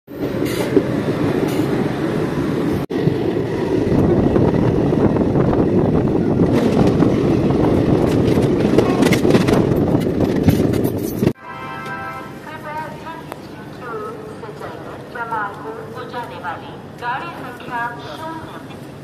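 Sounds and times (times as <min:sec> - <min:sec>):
train coaches rattling: 0:00.1 - 0:11.9.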